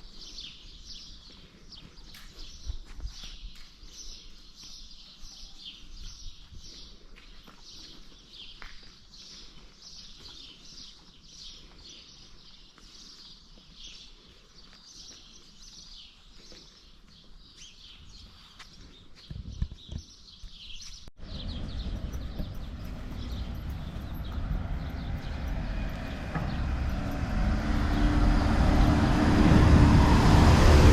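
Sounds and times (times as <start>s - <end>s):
birds chirping: 7.6s - 30.9s
low rumble: 21.2s - 30.9s.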